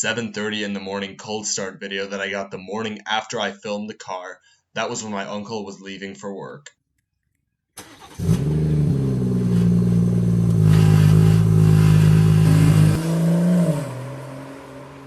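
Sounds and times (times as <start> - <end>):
car engine cold start idle: 7.8 - 13.0.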